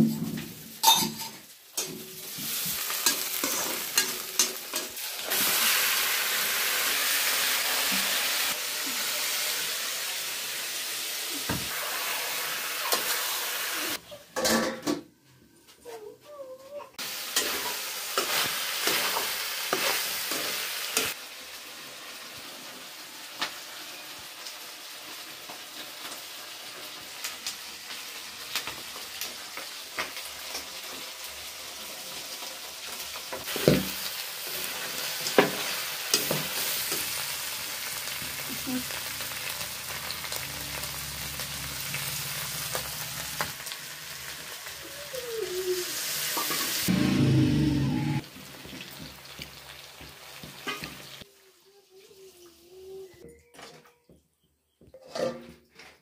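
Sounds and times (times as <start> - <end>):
chicken frying and sizzling: 0.0 - 15.0, 15.7 - 53.3
metal clinking on steel pan: 0.8 - 2.0.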